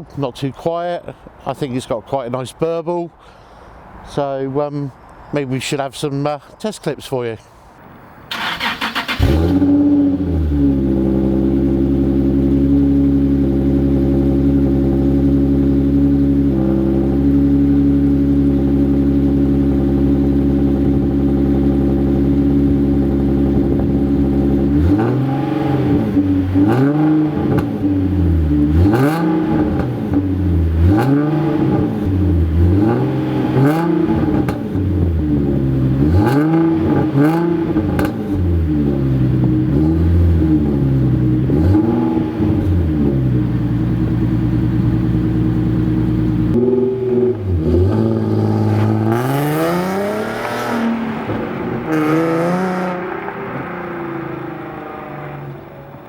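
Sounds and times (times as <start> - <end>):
car engine idling: 8.3 - 50.2
car engine revving: 8.3 - 56.0.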